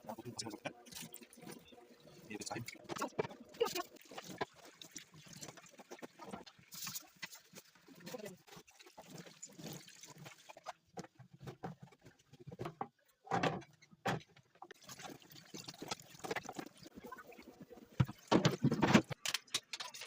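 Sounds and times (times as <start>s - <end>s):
water splashing: 0.0s - 11.0s, 14.8s - 18.7s
objects knocking: 17.9s - 20.0s.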